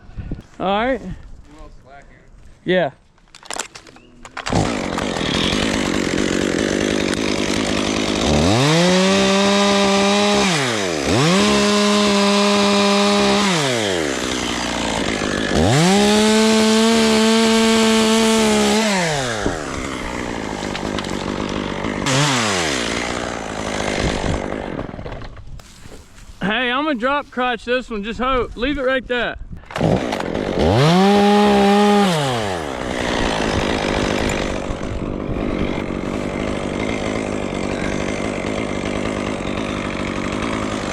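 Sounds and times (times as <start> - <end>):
chainsaw idling and revving: 4.4 - 25.4, 29.7 - 40.9.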